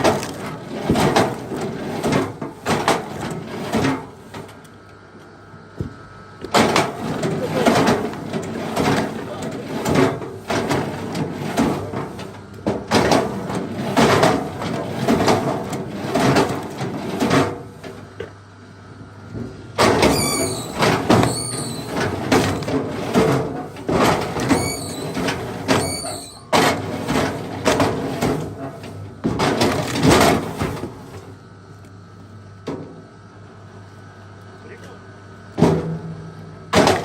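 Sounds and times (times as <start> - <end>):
high squeaks: 20.1 - 22.0, 25.8 - 26.5.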